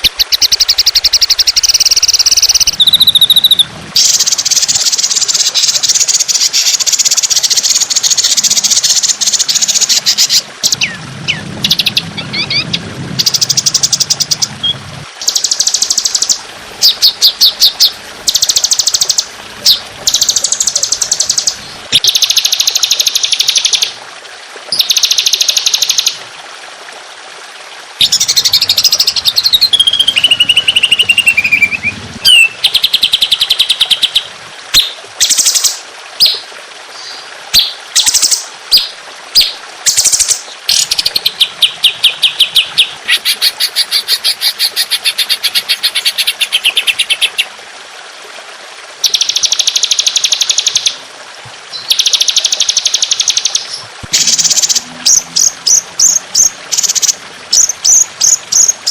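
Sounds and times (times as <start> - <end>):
songbird singing rapid high notes: 0.0 - 23.9, 28.0 - 34.3.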